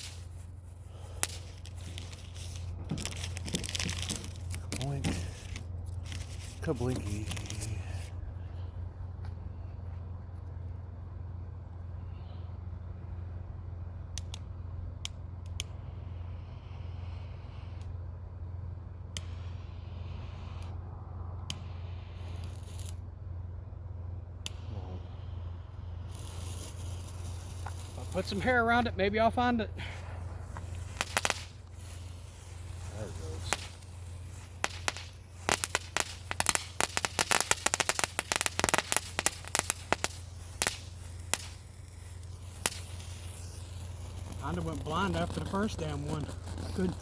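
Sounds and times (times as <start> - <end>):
short rustle: 0.0 - 8.2
ground firework crackling: 0.0 - 9.2, 19.1 - 20.8, 21.5 - 23.6, 24.3 - 47.0
steady low hum: 0.0 - 47.0
sharp clicks: 14.1 - 15.8.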